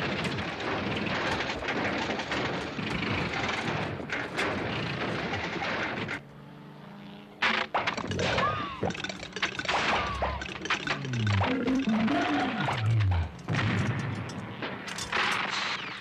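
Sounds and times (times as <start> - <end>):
engine running rough with popping: 0.0 - 6.3, 7.4 - 15.8
engine backfire bangs: 12.8 - 15.4.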